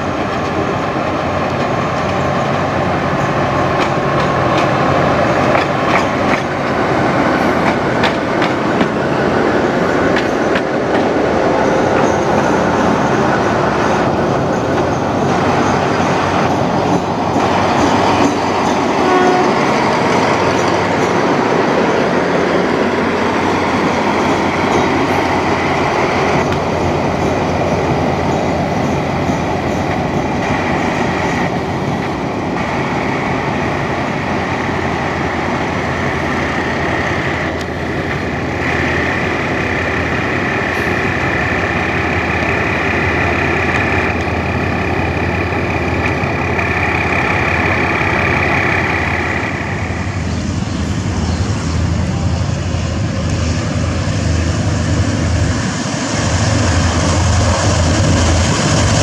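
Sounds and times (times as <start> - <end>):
diesel locomotive engine: 0.0 - 59.0
train wheels clattering on rails: 0.0 - 59.0.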